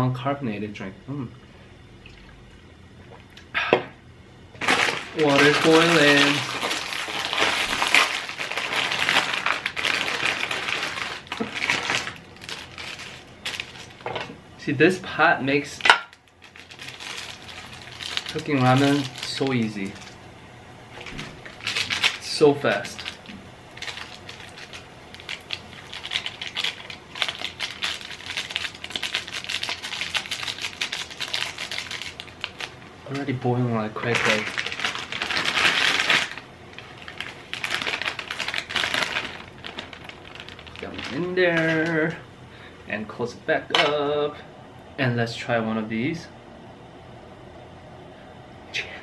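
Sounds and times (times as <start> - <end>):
water boiling hard in a pot: 4.6 - 12.2.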